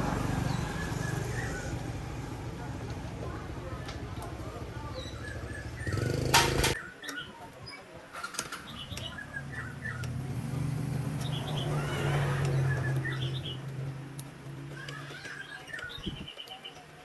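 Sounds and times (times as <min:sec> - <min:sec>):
small birds chirping: 0:00.1 - 0:02.0, 0:03.3 - 0:17.0.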